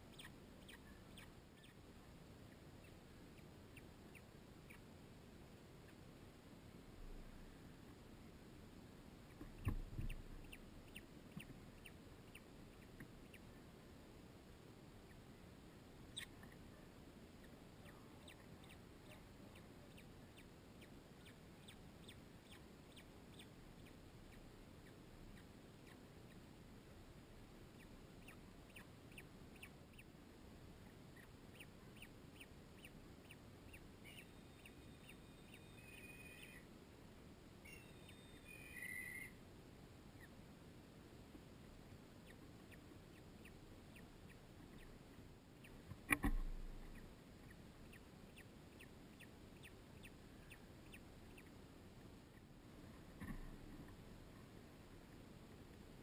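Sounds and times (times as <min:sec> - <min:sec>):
faint bird peeping: 0:00.0 - 0:08.3, 0:09.2 - 0:14.0, 0:14.8 - 0:39.4, 0:40.0 - 0:40.5, 0:41.4 - 0:55.0.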